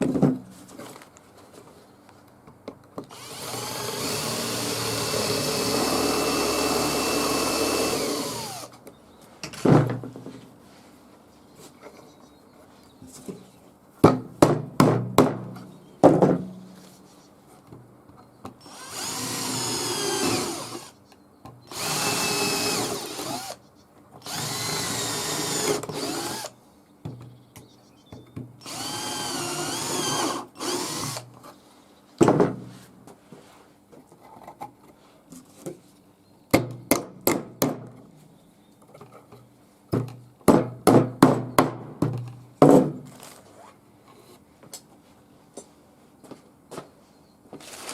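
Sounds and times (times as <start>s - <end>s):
power drill running: 3.1s - 8.7s, 18.7s - 20.9s, 21.7s - 23.6s, 24.2s - 26.5s, 28.6s - 31.3s.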